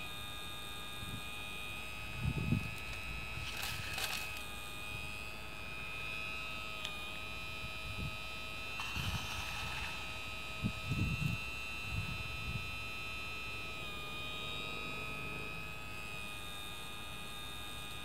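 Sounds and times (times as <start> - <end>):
hydraulic pump whining: 2.8 - 4.5, 8.7 - 11.2
rustling bursts: 3.4 - 4.4.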